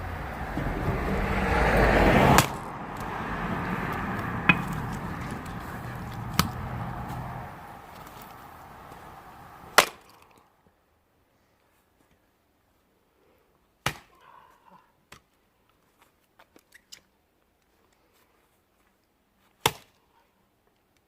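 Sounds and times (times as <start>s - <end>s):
motor vehicle passing: 0.0s - 9.8s
axe striking firewood: 2.1s - 8.5s, 9.7s - 10.1s, 13.8s - 14.1s.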